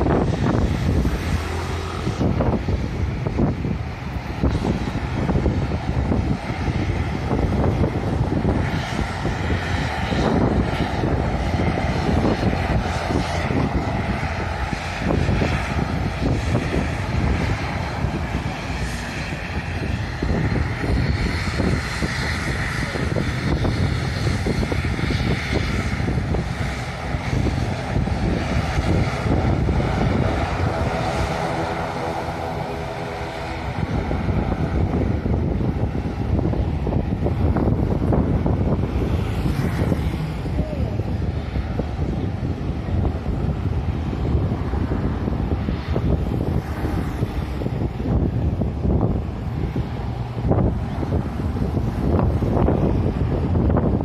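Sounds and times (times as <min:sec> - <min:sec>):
jet airliner engines: 0:00.0 - 0:54.0
wind buffeting microphone: 0:00.0 - 0:54.0.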